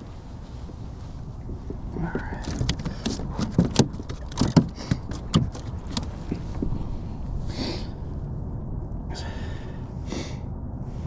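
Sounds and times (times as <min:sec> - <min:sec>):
low wind rumble: 0:00.0 - 0:11.0
fishing gear clicking and knocking: 0:02.0 - 0:06.7.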